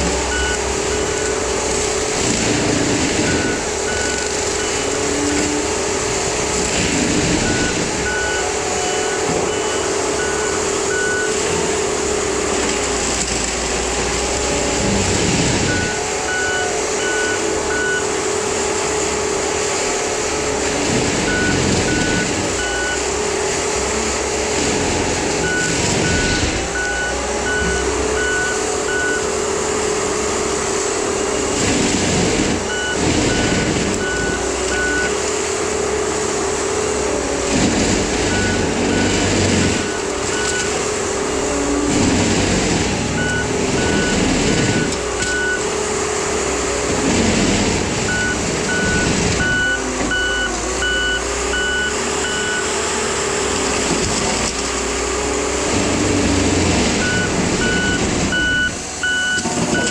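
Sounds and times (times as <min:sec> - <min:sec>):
skid steer engine running hard: 0:00.0 - 0:59.9
backup alarm beeps: 0:00.3 - 0:01.4, 0:07.4 - 0:11.4, 0:25.4 - 0:29.3, 0:32.7 - 0:35.2, 0:38.3 - 0:40.8, 0:43.1 - 0:45.6, 0:48.1 - 0:52.7, 0:57.0 - 0:59.9.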